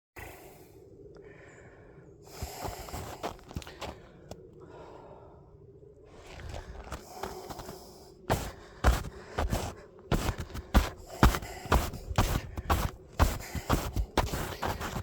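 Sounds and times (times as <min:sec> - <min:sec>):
footsteps crunching icy snow: 0:02.3 - 0:04.1, 0:06.2 - 0:15.0.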